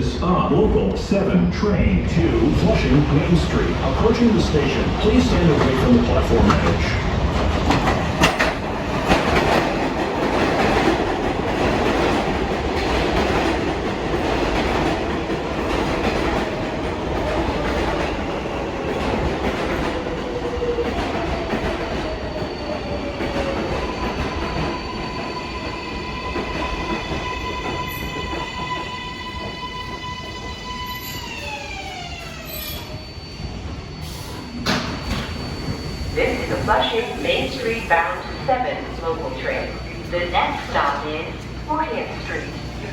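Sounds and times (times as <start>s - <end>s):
train wheels clacking: 4.4s - 29.6s.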